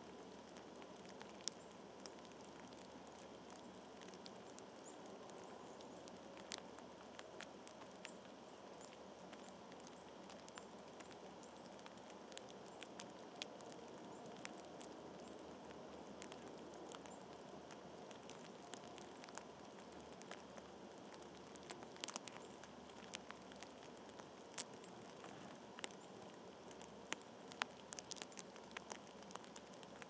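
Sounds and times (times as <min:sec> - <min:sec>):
small clicks and ticks: 0:00.0 - 0:30.0
steady outdoor hiss: 0:00.0 - 0:30.0.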